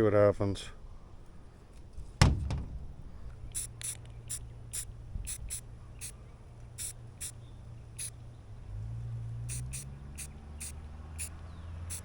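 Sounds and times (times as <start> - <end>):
sharp knock: 2.2 - 3.4
spray can spritzes: 3.5 - 6.1, 6.8 - 7.4, 9.5 - 11.3.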